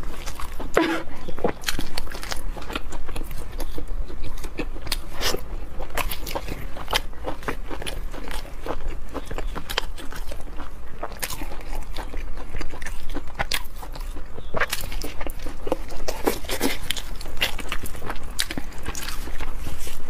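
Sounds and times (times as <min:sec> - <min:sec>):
wet chewing and lip smacks: 0:00.0 - 0:20.0.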